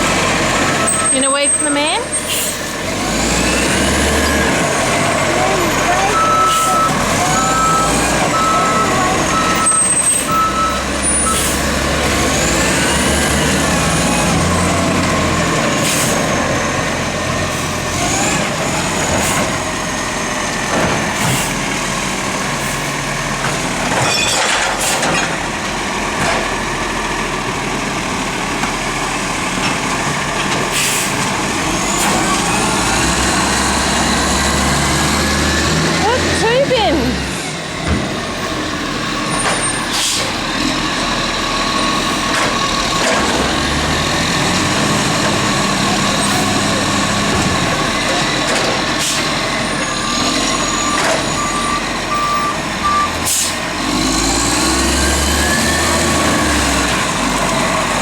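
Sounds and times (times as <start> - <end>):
diesel engine running: 0.0 - 58.0
even beeps: 6.0 - 11.4.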